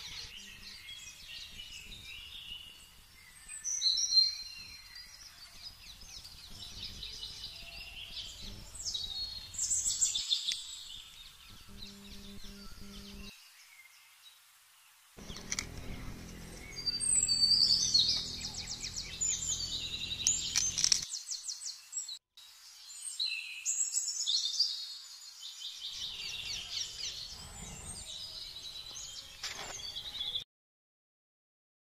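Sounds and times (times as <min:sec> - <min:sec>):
songbirds chirping and trilling: 0:00.0 - 0:30.4
low outdoor rumble: 0:15.2 - 0:21.0.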